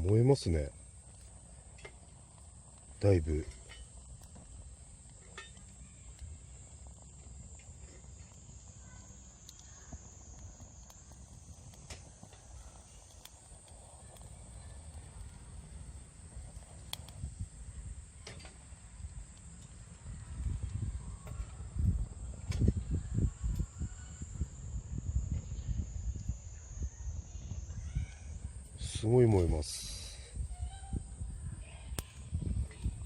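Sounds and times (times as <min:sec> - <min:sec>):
fire crackling and popping: 0:00.0 - 0:33.0
fire rushing: 0:00.0 - 0:33.0
insect trill: 0:00.0 - 0:33.0.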